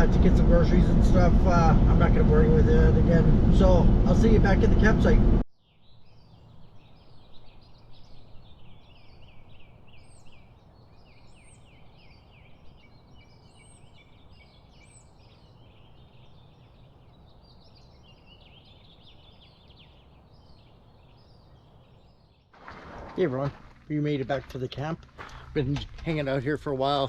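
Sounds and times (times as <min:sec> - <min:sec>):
faint low rumble: 0:00.0 - 0:05.4
small birds chirping and twittering: 0:05.5 - 0:22.6.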